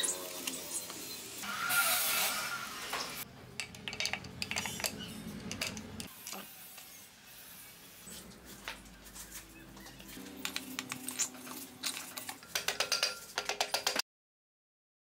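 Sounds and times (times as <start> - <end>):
metal tools clinking: 3.6 - 6.4, 10.7 - 14.0.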